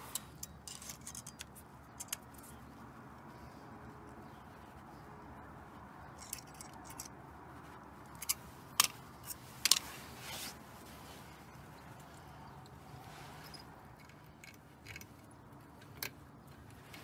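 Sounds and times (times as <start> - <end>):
metal parts and tools clinking: 0.0 - 2.6, 6.0 - 7.2, 8.0 - 10.5, 11.1 - 17.0
sharp metallic clicks: 8.1 - 9.9
metal scrape: 8.1 - 11.8.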